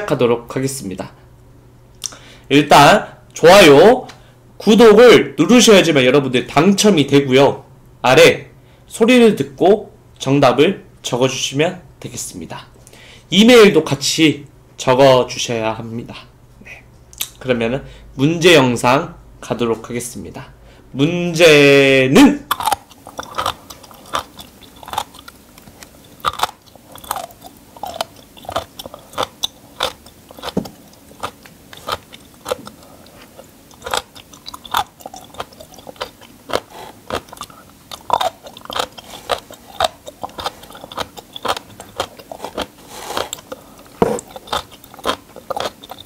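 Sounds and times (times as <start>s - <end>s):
crunchy food bites and chewing: 22.5s - 46.0s.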